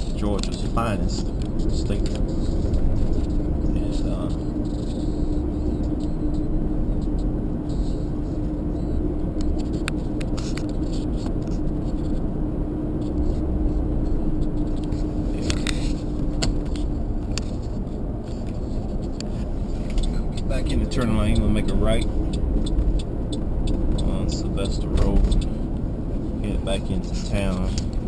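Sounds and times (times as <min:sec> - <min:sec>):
light clicks and ticks: 0:00.0 - 0:07.8, 0:18.3 - 0:25.5, 0:26.6 - 0:28.0
car road noise rumble: 0:00.0 - 0:28.0
steady hum: 0:00.0 - 0:28.0.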